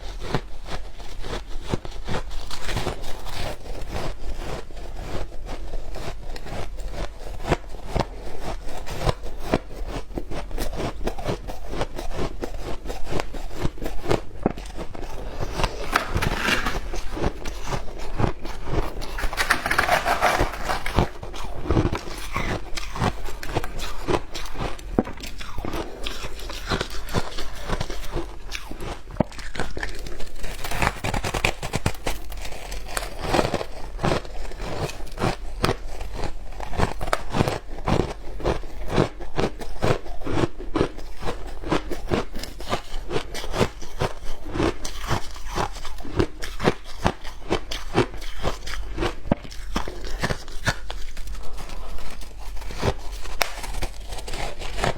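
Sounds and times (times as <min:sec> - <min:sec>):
ice being chewed with crunches: 0:00.0 - 0:54.9.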